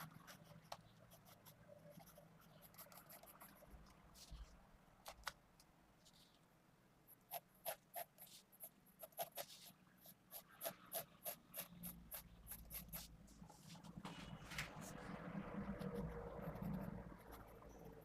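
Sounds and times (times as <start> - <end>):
pencil strokes on paper: 7.3 - 18.0.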